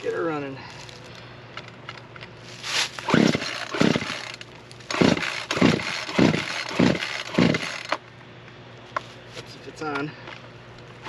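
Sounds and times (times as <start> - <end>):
man speaking: 0.0 - 0.7, 9.5 - 10.2
chainsaw starter cord yanks: 3.0 - 8.0.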